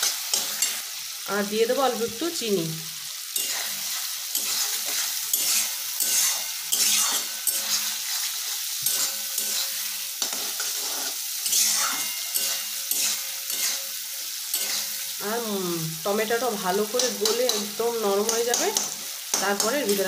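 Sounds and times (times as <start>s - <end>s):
food sizzling in hot oil: 0.0s - 20.0s
spatula scraping a pan: 3.3s - 15.1s.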